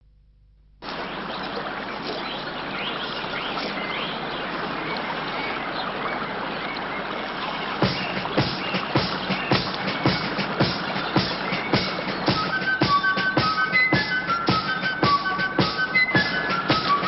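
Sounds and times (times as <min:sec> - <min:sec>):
running water: 0:00.8 - 0:17.0
faint bird chirps: 0:00.9 - 0:17.0
music drum beats: 0:07.8 - 0:17.0.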